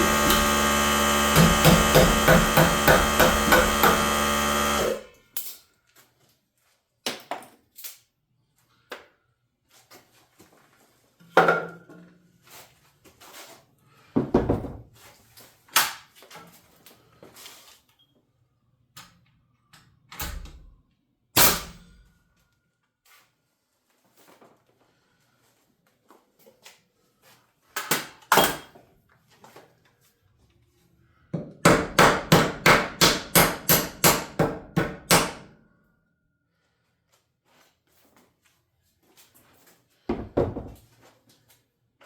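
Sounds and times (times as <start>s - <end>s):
lumber and tools knocking: 0.0s - 5.0s
power tool whining: 0.0s - 5.1s.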